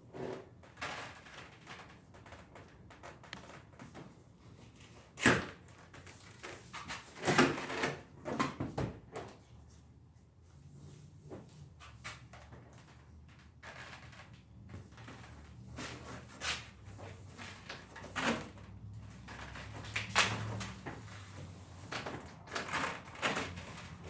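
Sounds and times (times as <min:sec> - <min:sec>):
plastic panels knocking and scraping: 0:12.2 - 0:24.0.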